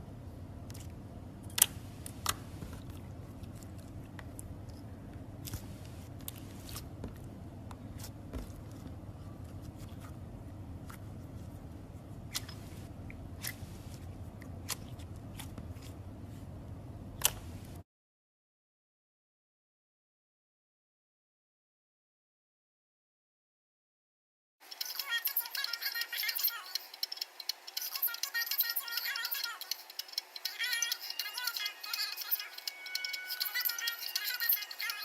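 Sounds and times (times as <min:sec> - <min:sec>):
steady low hum: 0:00.0 - 0:17.8.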